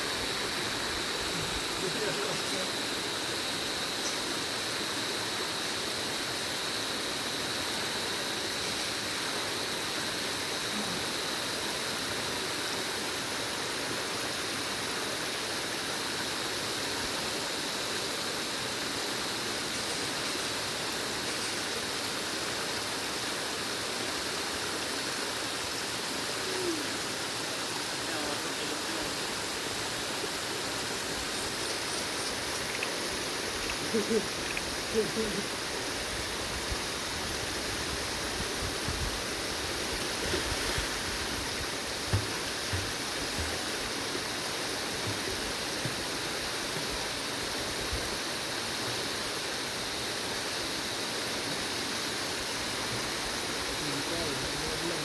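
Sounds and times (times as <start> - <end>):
water rushing steadily: 0.0 - 55.0.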